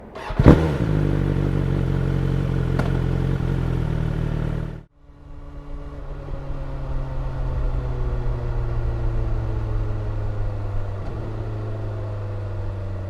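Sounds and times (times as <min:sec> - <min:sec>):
motorcycle engine revving and idling: 0:00.0 - 0:04.9.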